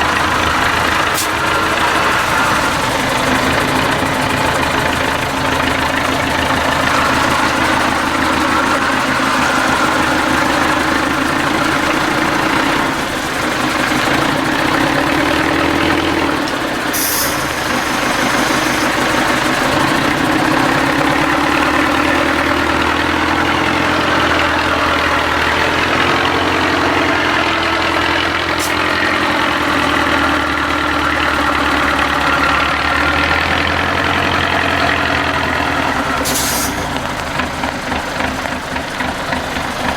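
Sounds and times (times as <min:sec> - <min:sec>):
diesel truck engine running: 0:00.0 - 0:39.9
short hiss: 0:36.2 - 0:36.9.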